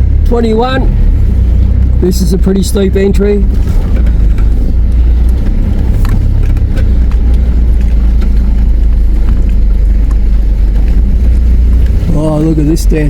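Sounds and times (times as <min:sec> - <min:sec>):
vehicle engine low rumble: 0:00.0 - 0:13.0.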